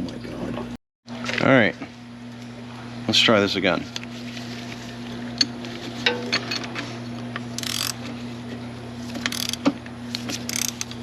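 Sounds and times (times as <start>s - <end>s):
steady low hum: 1.5s - 11.0s
ratchet wrench clicking: 7.6s - 8.0s, 9.2s - 9.7s, 10.4s - 11.0s.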